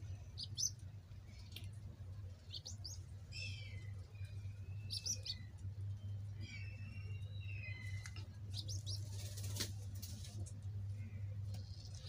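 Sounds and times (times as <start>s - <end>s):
low steady hum: 0.0s - 12.0s
small birds chirping: 0.0s - 12.0s
bird warbling: 2.5s - 5.5s.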